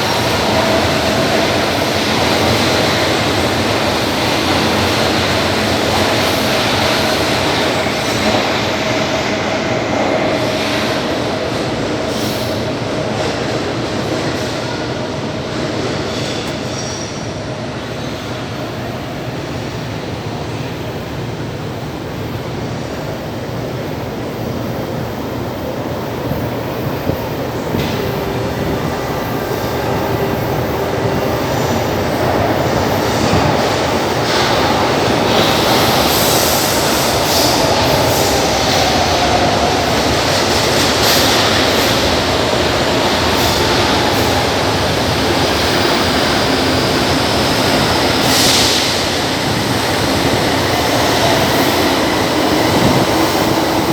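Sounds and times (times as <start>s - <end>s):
metro train running: 0.0s - 53.9s.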